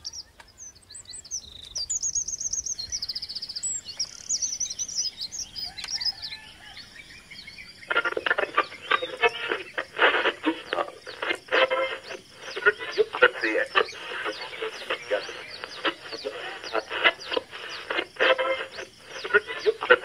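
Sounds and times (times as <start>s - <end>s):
small birds chirping and trilling: 0.0s - 20.0s
radio tuning crackle: 7.8s - 20.0s.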